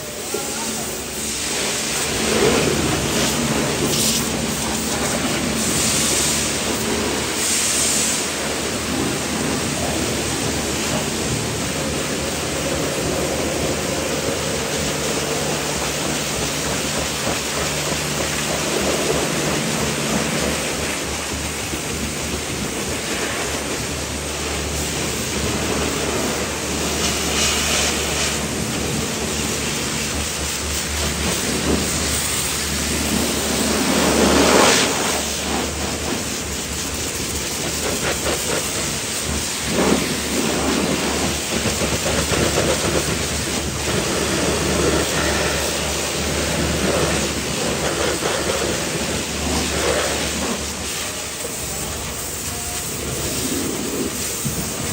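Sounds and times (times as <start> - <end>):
pressure washer motor hum: 0.0 - 54.9
pressure washer spray hiss: 0.0 - 54.9.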